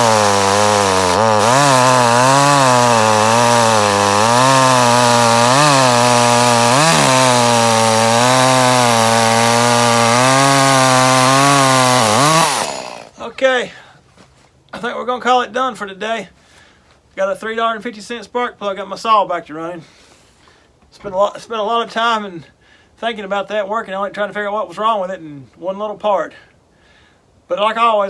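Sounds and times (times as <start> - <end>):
chainsaw cutting wood: 0.0 - 13.2.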